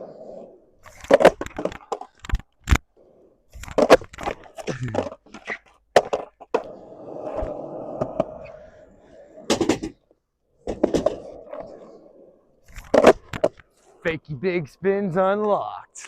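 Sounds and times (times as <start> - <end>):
skateboard rolling: 0.0 - 14.0
skateboard tail clack: 0.9 - 2.4, 3.6 - 6.7, 9.5 - 10.0, 10.6 - 11.7, 12.7 - 13.7
skateboard landing clack: 0.9 - 2.8, 3.6 - 6.7, 9.4 - 10.0, 10.6 - 11.3, 12.7 - 13.7.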